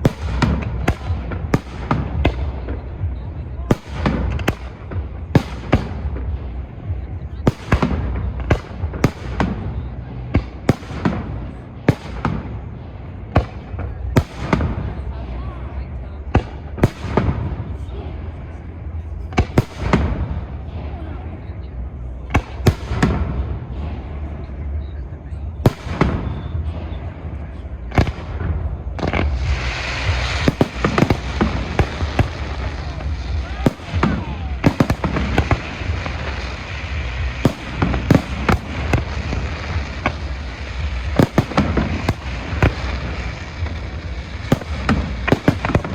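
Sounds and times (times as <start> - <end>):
fireworks bursting with sharp bangs: 0.0 - 45.9
steady low rumble: 0.0 - 45.9
hissing crackling firework shower: 28.0 - 45.9.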